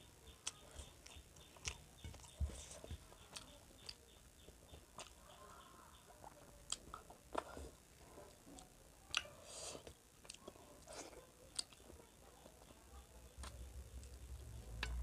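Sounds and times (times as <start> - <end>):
person chewing food: 0.3 - 12.0.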